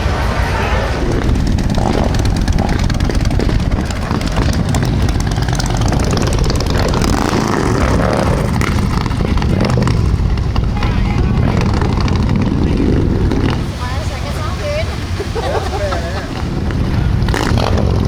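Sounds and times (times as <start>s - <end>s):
motorcycle engines rumbling: 0.0s - 18.0s.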